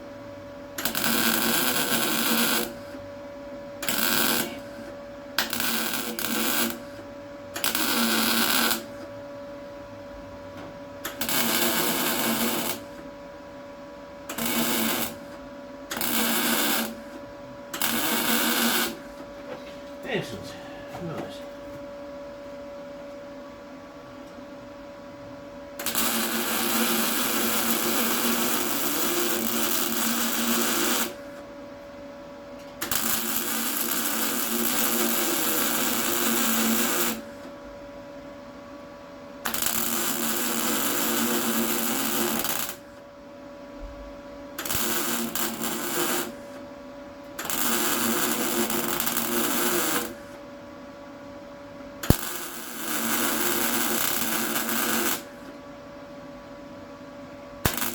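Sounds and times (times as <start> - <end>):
welder buzzing hiss: 0.8 - 3.0, 3.8 - 7.0, 7.6 - 9.0, 11.1 - 13.0, 14.3 - 17.2, 17.8 - 19.2, 25.8 - 31.2, 32.8 - 37.5, 39.4 - 43.0, 44.6 - 46.6, 47.4 - 50.4, 52.0 - 55.5, 57.7 - 57.9.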